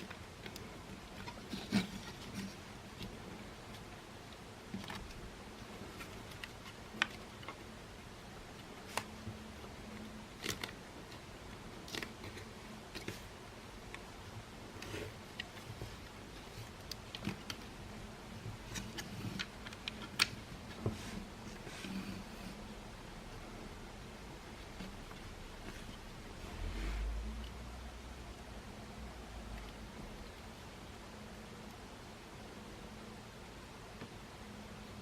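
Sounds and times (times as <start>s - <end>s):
small clicks and taps: 0.0s - 7.7s
faint steady hum: 0.0s - 35.0s.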